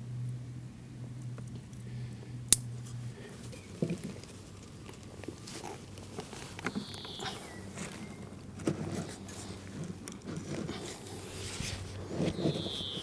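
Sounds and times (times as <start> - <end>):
handling clicks and rustles: 2.5 - 13.0
short high squeak: 11.6 - 13.0.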